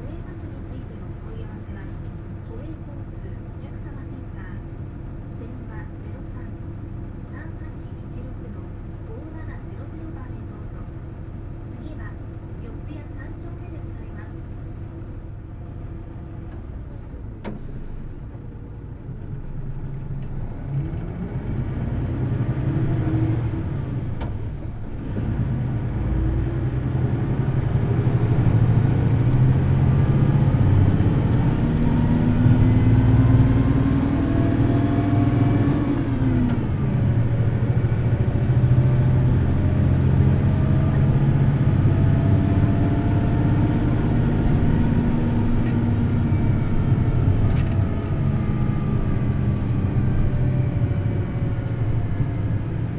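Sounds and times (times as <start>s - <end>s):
bus diesel engine revving: 19.2s - 52.9s.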